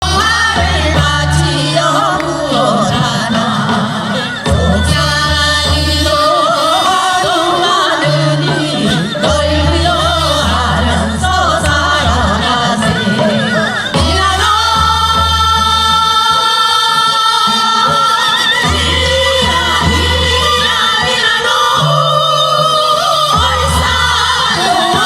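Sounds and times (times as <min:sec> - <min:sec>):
folk singing with vibrato: 0:00.0 - 0:25.0
instrumental accompaniment: 0:00.0 - 0:25.0.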